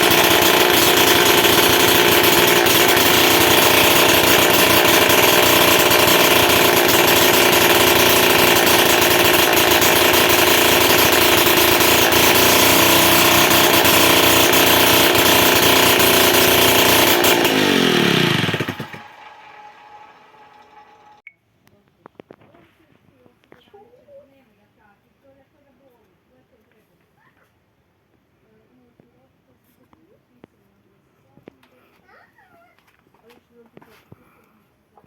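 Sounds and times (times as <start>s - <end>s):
moped engine running and shutting off: 0.0s - 21.2s.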